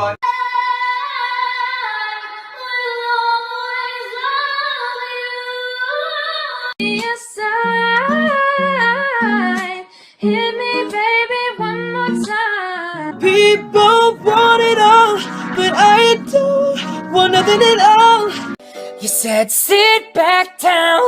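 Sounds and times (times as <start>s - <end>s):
singer with instrumental accompaniment: 6.8s - 21.0s
woman singing high held notes: 11.6s - 18.4s.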